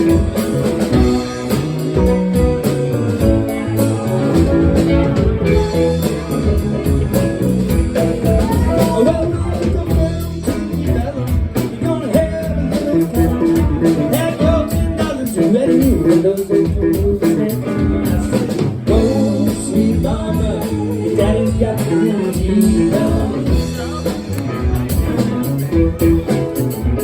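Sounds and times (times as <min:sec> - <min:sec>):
bass guitar: 0:00.0 - 0:27.0
drum kit: 0:00.0 - 0:27.0
electric guitar: 0:00.0 - 0:27.0
person singing: 0:08.0 - 0:25.3.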